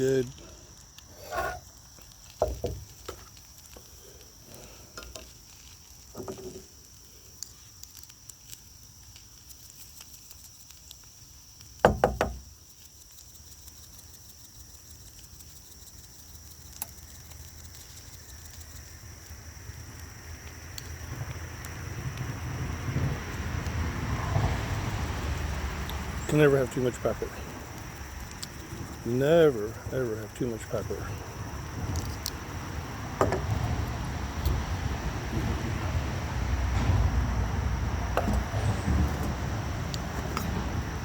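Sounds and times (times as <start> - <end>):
knocks and clatters of handling: 4.9 - 6.7.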